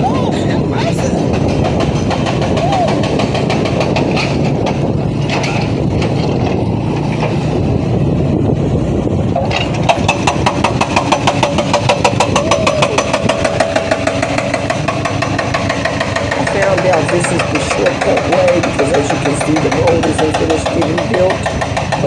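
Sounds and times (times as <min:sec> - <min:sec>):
motorcycle engine running: 0:00.0 - 0:22.0
rapid regular ticking: 0:09.7 - 0:22.0.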